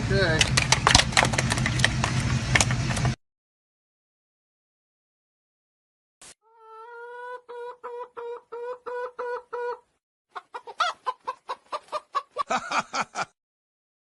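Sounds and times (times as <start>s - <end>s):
chicken clucking: 6.4s - 12.7s.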